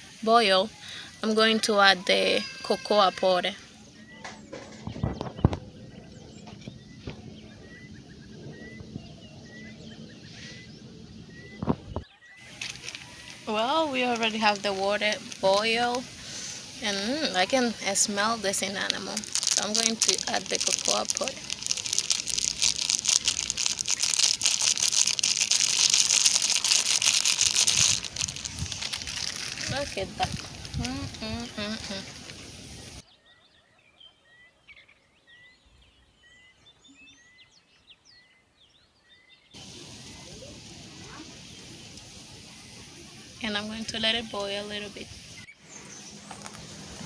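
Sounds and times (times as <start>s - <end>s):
bird chirping: 3.6s - 22.4s, 31.0s - 47.0s
packet crinkling and rustling: 12.4s - 31.2s, 45.8s - 47.0s.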